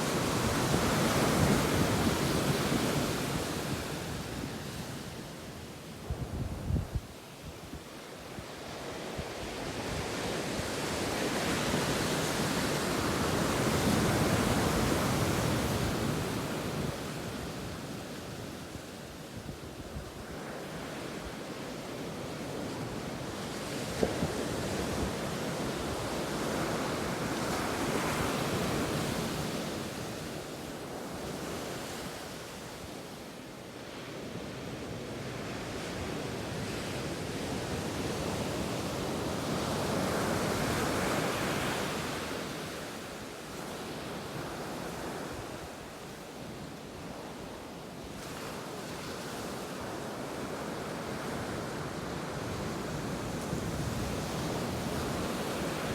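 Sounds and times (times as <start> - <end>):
ocean waves breaking on beach: 0.0 - 6.3, 7.2 - 55.9
wind on microphone: 6.0 - 8.5.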